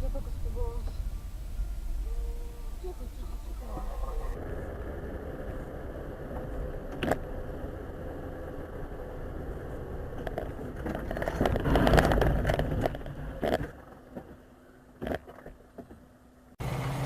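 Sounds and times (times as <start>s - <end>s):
car road and engine noise: 0.0s - 17.0s
rattles and clicks: 5.4s - 7.8s, 8.8s - 14.4s.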